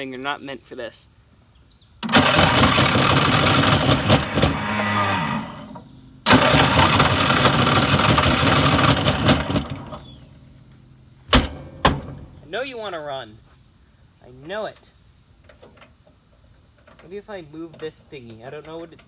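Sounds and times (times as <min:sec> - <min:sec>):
small engine cranking by starter: 0:02.0 - 0:10.4.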